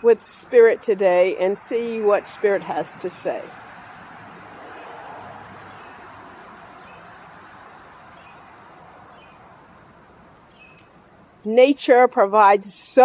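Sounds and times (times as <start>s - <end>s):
vehicle passing: 0.0s - 10.6s
faint bird chirps: 10.0s - 11.0s.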